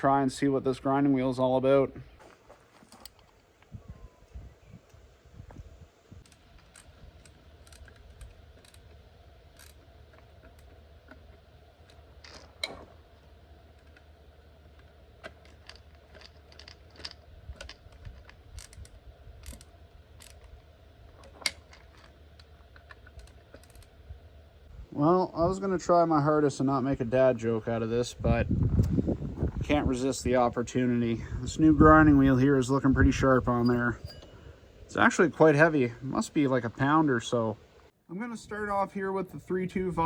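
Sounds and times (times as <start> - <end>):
small metal parts clinking: 14.7 - 23.9.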